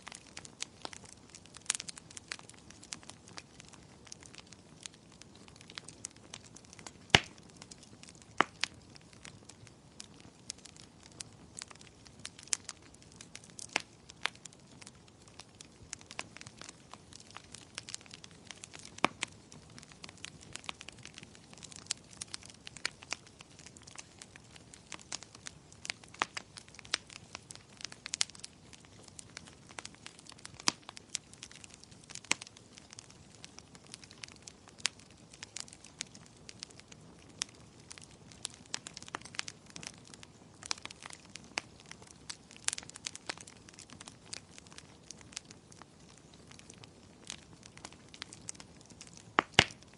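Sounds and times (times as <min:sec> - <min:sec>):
low steady hiss: 0:00.0 - 0:49.9
wood fire crackling and popping: 0:00.0 - 0:49.9.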